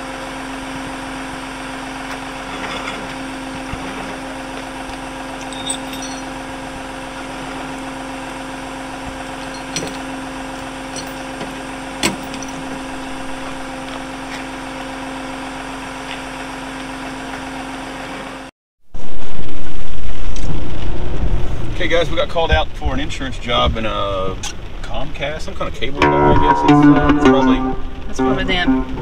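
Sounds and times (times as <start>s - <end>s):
vehicle engine running: 0.0s - 18.5s.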